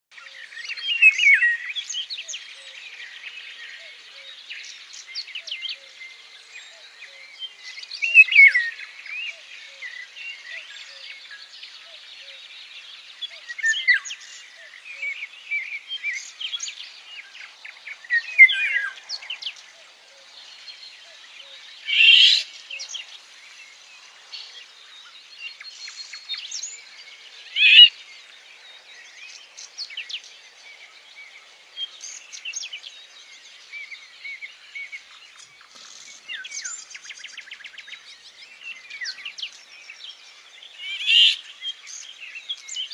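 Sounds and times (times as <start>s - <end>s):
songbirds singing: 0.1s - 42.9s
steady high hiss: 12.5s - 37.7s.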